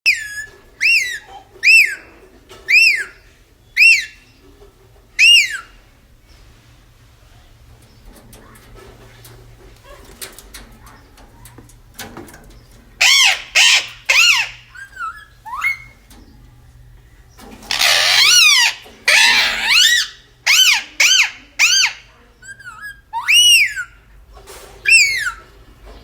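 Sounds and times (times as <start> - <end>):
parrot squawking: 0.0 - 3.2, 3.8 - 4.2, 5.2 - 5.8, 13.0 - 16.0, 17.7 - 24.0, 24.8 - 25.5.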